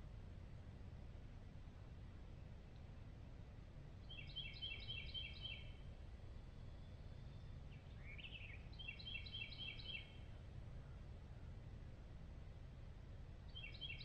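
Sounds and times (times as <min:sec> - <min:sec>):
distant songbird singing: 0:04.0 - 0:05.8, 0:06.4 - 0:11.0, 0:13.5 - 0:14.0.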